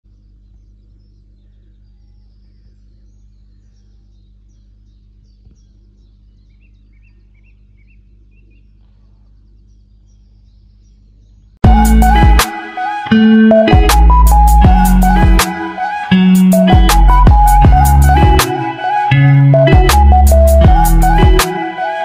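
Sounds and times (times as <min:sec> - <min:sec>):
small birds chirping: 0:00.1 - 0:11.6.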